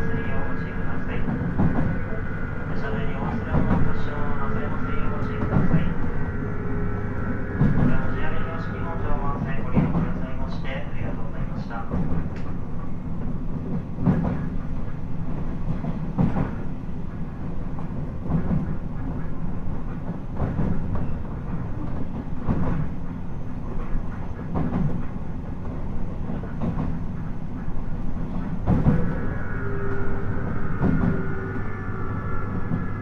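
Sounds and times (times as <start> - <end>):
rail-joint clack: 0.0 - 6.5, 7.2 - 10.7, 11.6 - 33.0
steady whining tones: 0.0 - 10.8, 28.6 - 33.0
train wheel and track rumble: 0.0 - 33.0.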